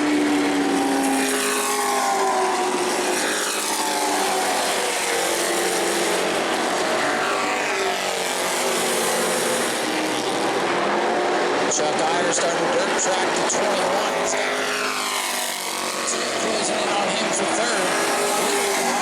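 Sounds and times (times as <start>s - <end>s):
race truck engines passing: 0.0s - 19.0s.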